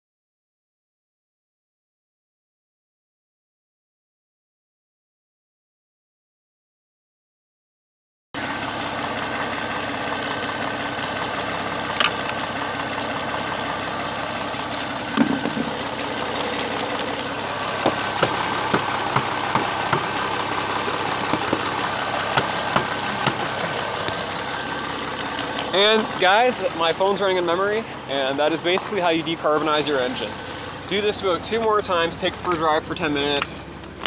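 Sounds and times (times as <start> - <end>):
car engine idling: 8.4 - 34.0.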